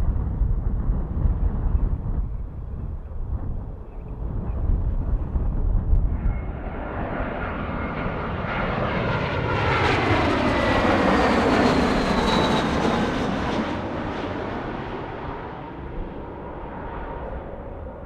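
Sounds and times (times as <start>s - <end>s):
jet airliner passing: 0.0s - 18.0s
whining jet engine tones: 5.9s - 18.0s.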